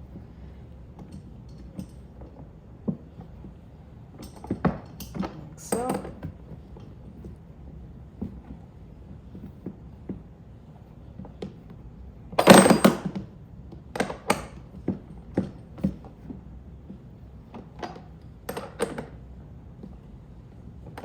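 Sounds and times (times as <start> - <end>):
metal tools clattering: 12.4 - 13.1.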